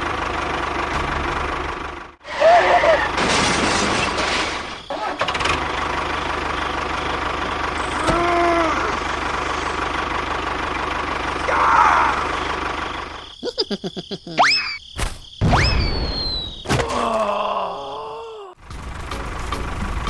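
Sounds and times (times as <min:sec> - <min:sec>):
small engine running: 0:05.0 - 0:13.3.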